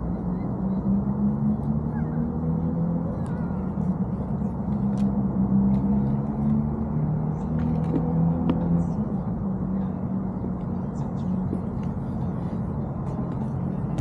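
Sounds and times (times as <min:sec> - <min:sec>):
constant rushing noise: 0:00.0 - 0:14.0.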